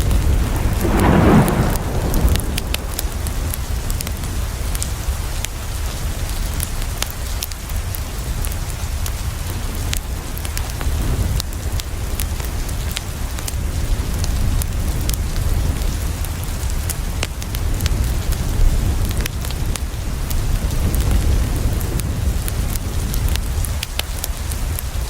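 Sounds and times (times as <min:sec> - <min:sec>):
deep low rumble: 0:00.0 - 0:05.1
wood fire crackling: 0:00.0 - 0:05.6
rain on a window: 0:00.0 - 0:25.0.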